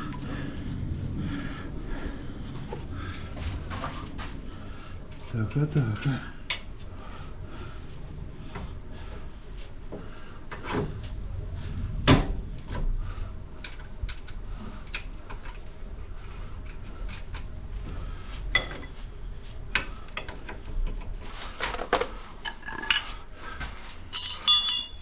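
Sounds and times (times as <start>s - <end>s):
metal tools clinking and knocking: 22.5s - 23.2s, 24.1s - 25.0s.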